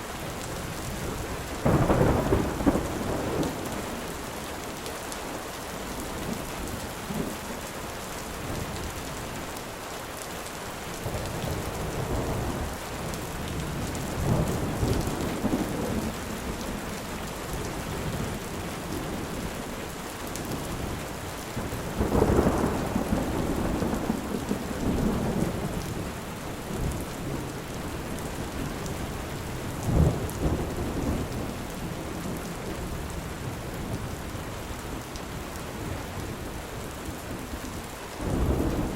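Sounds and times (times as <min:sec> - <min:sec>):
heavy rain falling: 0:00.0 - 0:38.9
thunder rumbling: 0:01.6 - 0:04.0, 0:38.2 - 0:38.9.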